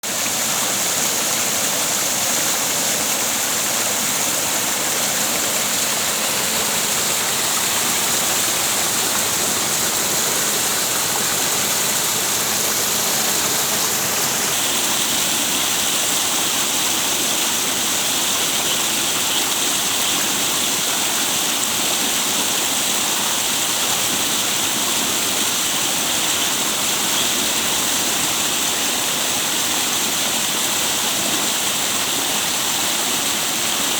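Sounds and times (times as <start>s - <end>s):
rushing water: 0.0s - 33.9s.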